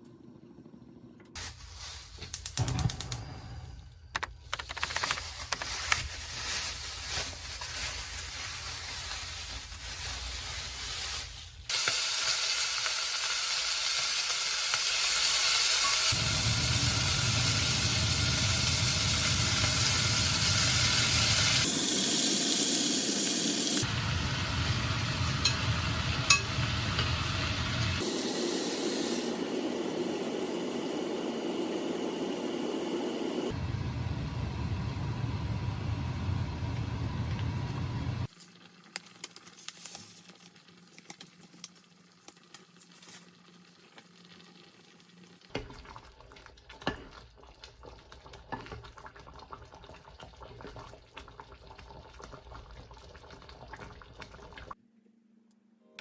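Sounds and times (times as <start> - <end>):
cooking hiss: 4.8 - 33.6.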